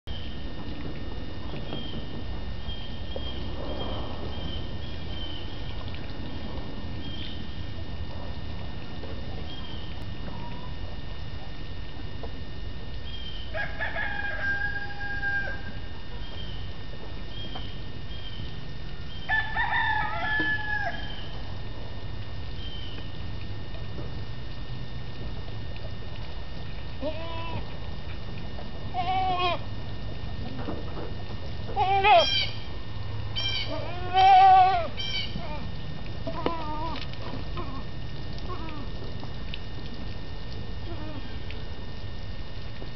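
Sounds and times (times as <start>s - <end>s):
rooster crowing: 13.5s - 15.8s, 19.3s - 21.3s
goat kids bleating: 27.0s - 27.7s, 28.9s - 29.7s, 31.7s - 32.5s, 33.4s - 37.9s.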